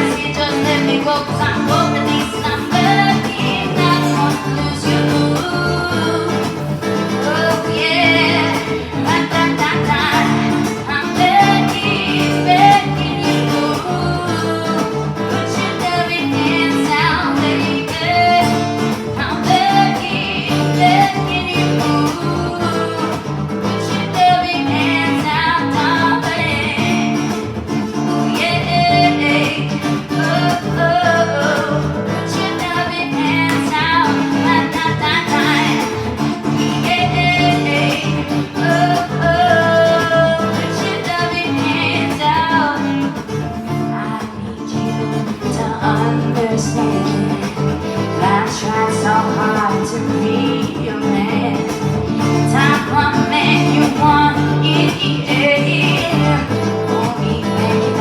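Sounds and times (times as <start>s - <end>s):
acoustic guitar: 0.0s - 58.0s
person singing: 0.0s - 58.0s.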